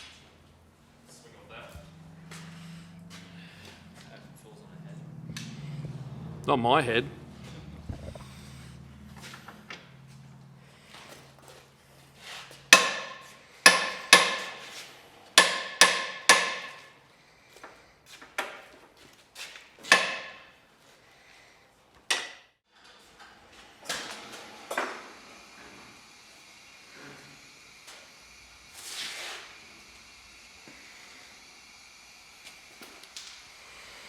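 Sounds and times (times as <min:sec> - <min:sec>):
hammer striking metal: 0:12.7 - 0:14.6, 0:15.4 - 0:16.9.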